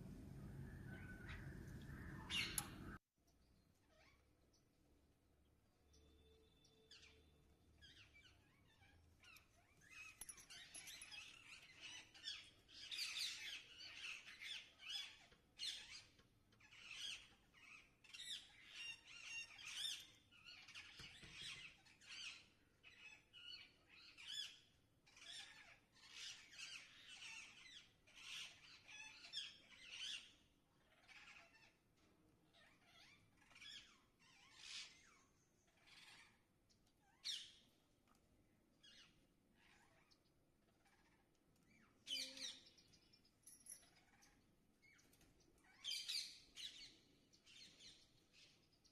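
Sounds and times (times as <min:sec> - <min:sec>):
parrots chirping and squawking: 0:07.8 - 0:24.5, 0:25.1 - 0:31.8, 0:32.5 - 0:37.6, 0:38.8 - 0:42.6, 0:43.8 - 0:45.0, 0:45.6 - 0:46.9.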